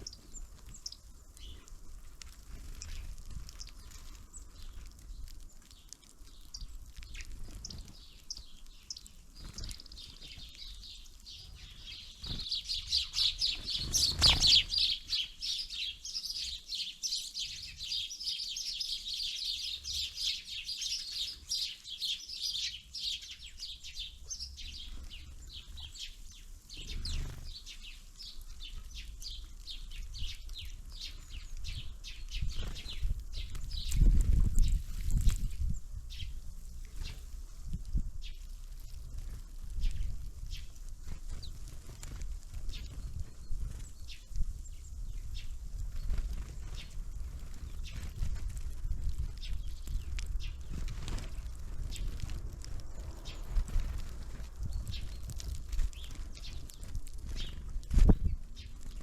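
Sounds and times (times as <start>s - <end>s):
small songbirds chirping: 0.0s - 59.0s.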